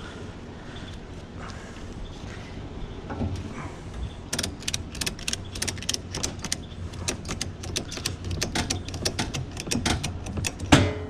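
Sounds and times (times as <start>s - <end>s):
steady low hum: 0.0s - 11.0s
sharp clicks and rattles: 4.3s - 10.9s.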